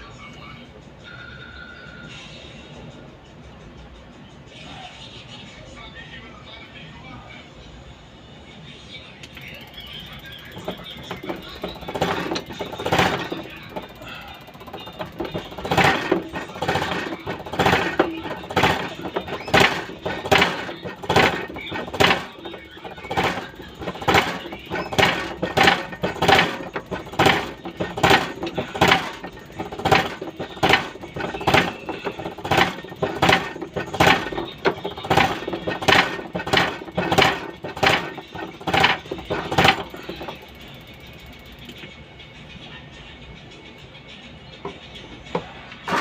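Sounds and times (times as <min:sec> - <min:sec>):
sharp metallic clicks: 0:09.2 - 0:42.0.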